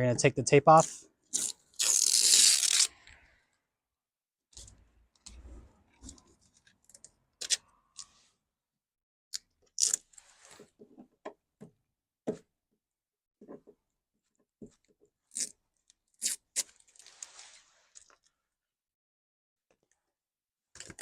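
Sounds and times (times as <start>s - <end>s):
masking tape peeling: 1.3s - 3.0s.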